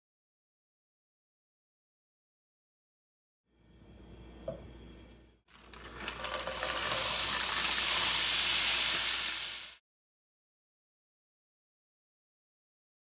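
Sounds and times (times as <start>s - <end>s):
butter sizzling: 5.5s - 9.8s
cauliflower pouring into pan: 5.5s - 9.8s.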